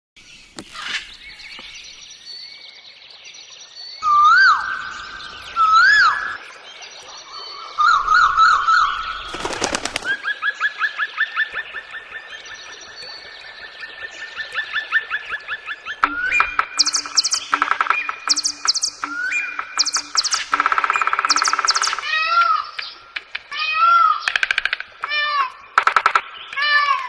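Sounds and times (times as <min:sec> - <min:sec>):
birds singing: 0:00.2 - 0:27.0
fast repeated bird chirps: 0:09.3 - 0:10.4, 0:16.0 - 0:23.0
rattle of sharp clicks: 0:24.3 - 0:25.1, 0:25.8 - 0:26.2.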